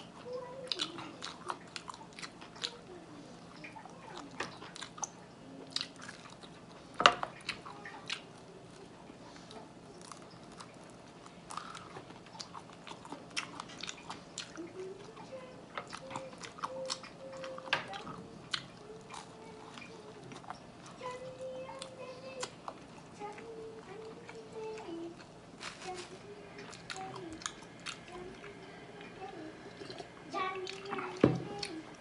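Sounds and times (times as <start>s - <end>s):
person chewing and biting: 10.0s - 14.6s.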